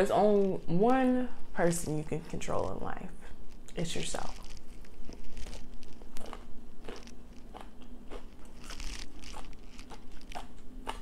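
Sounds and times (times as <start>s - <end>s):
crisp chewing crunches: 3.6s - 11.0s.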